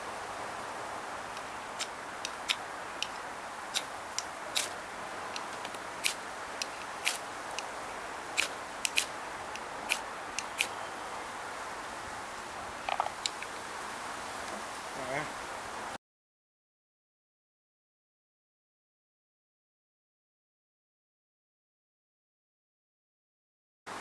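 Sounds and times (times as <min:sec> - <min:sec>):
steady hiss of fire: 0:00.0 - 0:16.0
fire crackling and popping: 0:01.1 - 0:10.8.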